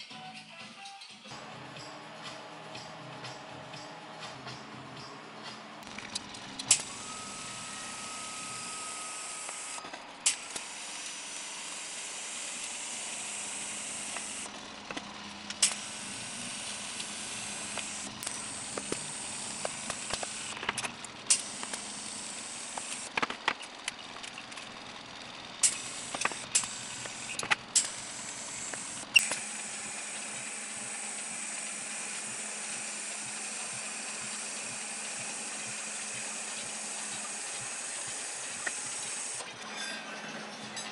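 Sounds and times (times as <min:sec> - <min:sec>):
high-pitched regulator whine: 0:01.3 - 0:40.9
welding arc and gas hissing: 0:05.4 - 0:23.7, 0:25.6 - 0:39.4.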